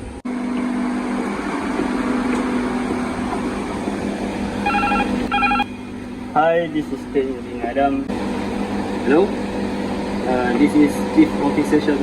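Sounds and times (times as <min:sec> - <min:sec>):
engine-room machinery hum: 0:00.0 - 0:12.0
telephone ringing: 0:04.6 - 0:05.9.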